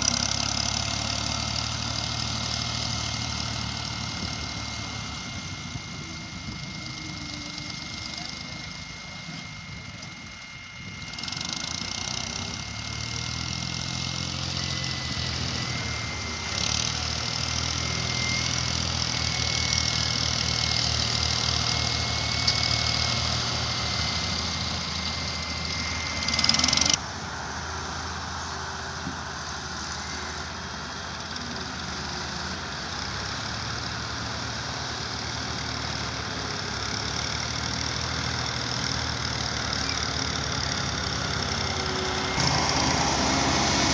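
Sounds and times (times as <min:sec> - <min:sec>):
heavy machinery engine running: 0:00.0 - 0:43.9
high whine: 0:03.4 - 0:30.7.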